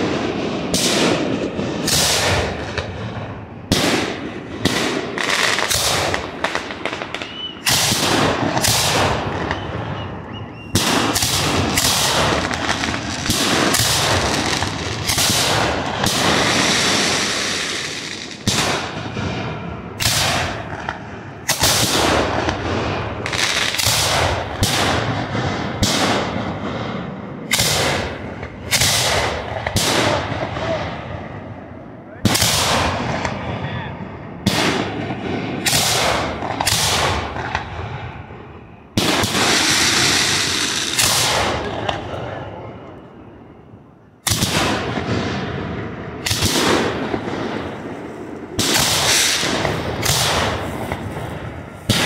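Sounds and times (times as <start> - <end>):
fireworks booms: 0.0 - 52.0
fireworks hissing crackle: 10.7 - 18.8, 39.3 - 41.3, 47.7 - 52.0.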